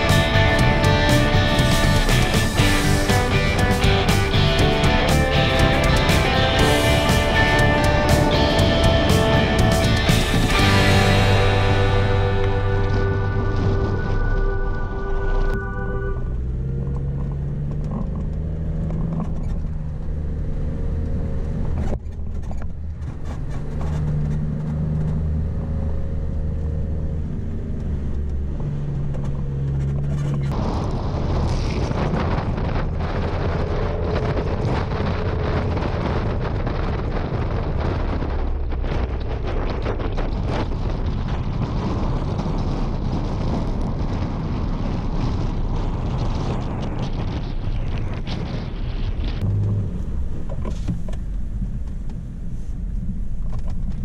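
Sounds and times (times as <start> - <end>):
wind noise on microphone: 0.0 - 54.0
car engine revving under load: 49.4 - 54.0.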